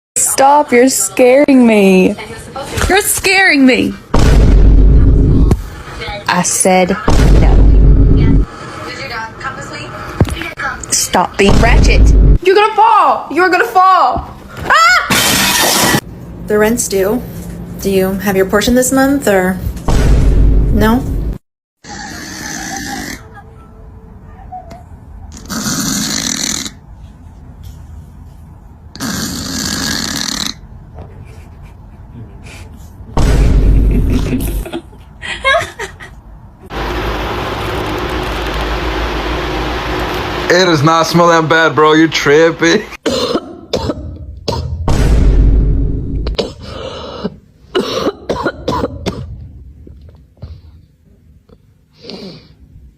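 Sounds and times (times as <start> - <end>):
raspy snores: 25.4 - 26.8, 29.0 - 30.6
harsh coughing: 43.0 - 44.8, 46.3 - 49.4.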